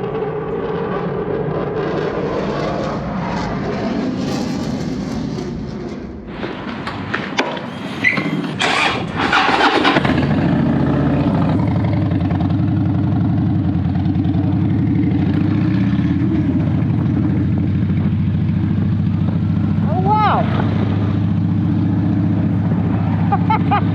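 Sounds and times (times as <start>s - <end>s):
motorcycle engine starting and idling: 6.3s - 23.9s.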